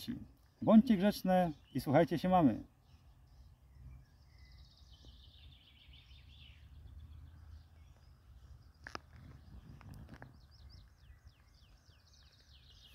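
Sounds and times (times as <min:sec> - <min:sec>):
faint songbird singing: 0:00.0 - 0:12.9.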